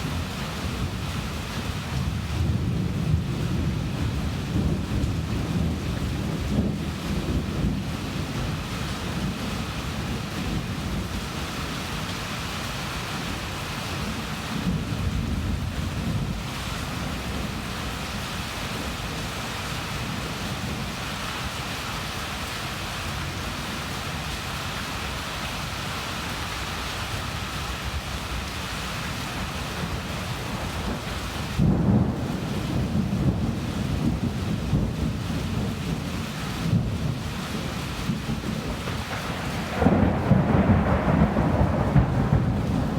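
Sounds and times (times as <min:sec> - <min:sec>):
steady rain: 0:00.0 - 0:42.9
rolls of thunder: 0:36.7 - 0:42.9.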